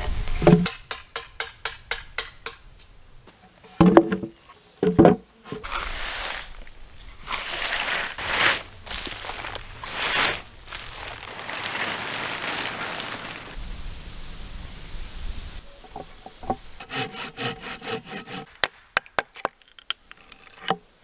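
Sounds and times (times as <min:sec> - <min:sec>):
heavy knocks: 0:15.8 - 0:17.6.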